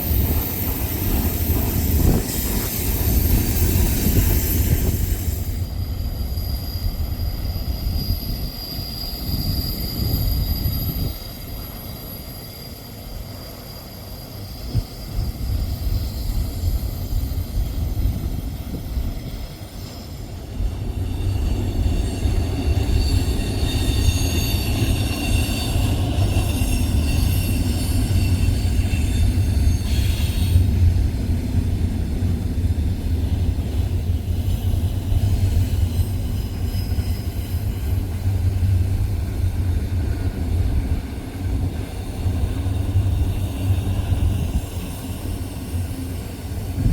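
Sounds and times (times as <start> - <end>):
steel wheel squeal: 0.0 - 31.0, 33.7 - 46.9
freight train rumbling past: 0.0 - 46.9.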